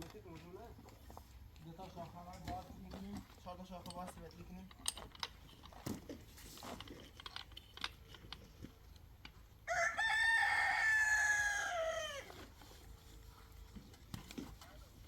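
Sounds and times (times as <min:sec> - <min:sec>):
rooster crowing: 0:09.7 - 0:12.4.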